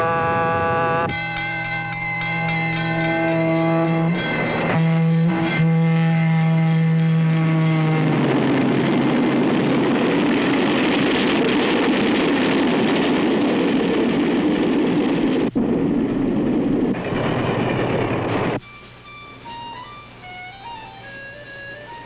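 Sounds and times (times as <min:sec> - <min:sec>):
soft violin music: 0:00.0 - 0:09.5, 0:18.6 - 0:22.0
train wheels rushing on rails: 0:16.3 - 0:18.6.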